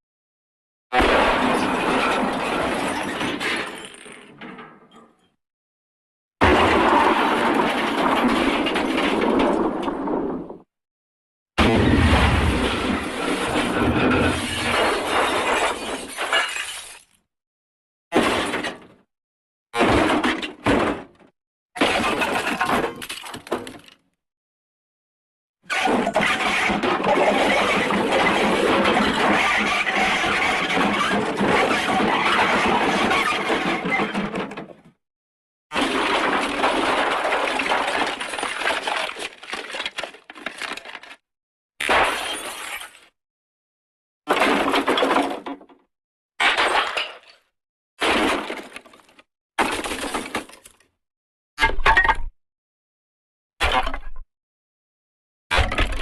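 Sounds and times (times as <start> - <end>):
smashing and clattering debris: 1.0 - 4.6, 6.4 - 10.6, 11.6 - 17.2, 21.8 - 24.0, 25.8 - 34.9, 35.8 - 41.2, 44.3 - 45.8, 46.4 - 50.8
glass shattering crash: 11.6 - 17.2, 41.8 - 43.1, 46.4 - 47.4.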